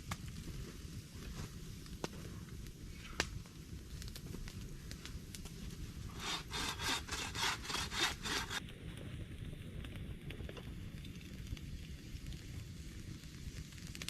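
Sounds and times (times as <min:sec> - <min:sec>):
sharp crackles: 0:00.0 - 0:14.0
hand saw cutting wood: 0:06.1 - 0:08.6.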